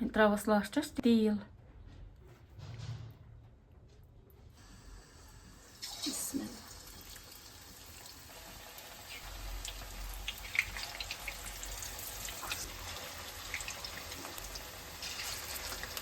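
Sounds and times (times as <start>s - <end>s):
food frying in hot oil: 4.6s - 16.0s
oil crackling and popping: 6.8s - 16.0s.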